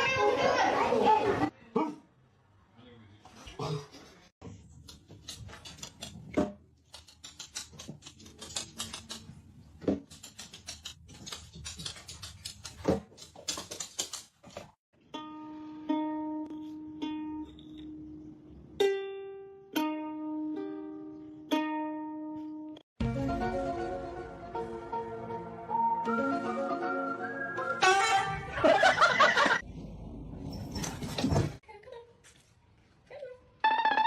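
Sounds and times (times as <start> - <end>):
sharp clicks and taps: 4.8 - 14.7
plucked string notes: 15.0 - 18.2, 18.8 - 27.2.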